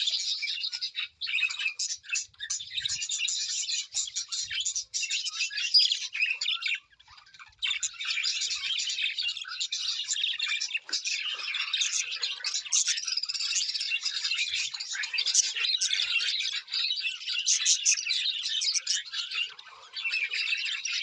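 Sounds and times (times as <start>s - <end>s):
birds chattering and chirping: 0.0s - 21.0s.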